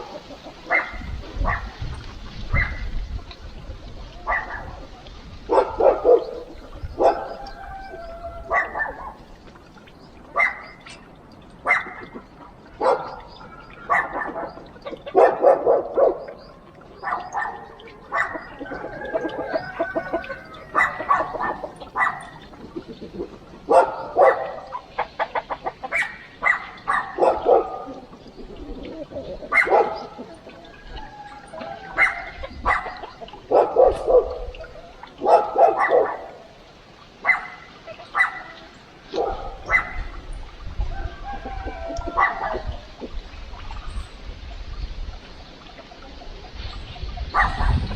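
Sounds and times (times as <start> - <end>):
dog barking: 0.7 - 1.8, 4.2 - 4.8, 5.5 - 7.7, 8.5 - 9.3, 10.4 - 10.8, 11.7 - 12.1, 12.8 - 16.4, 17.0 - 22.4, 23.7 - 24.9, 25.8 - 28.1, 29.5 - 30.2, 31.9 - 36.5, 37.2 - 40.1, 41.4 - 42.8, 47.3 - 47.9.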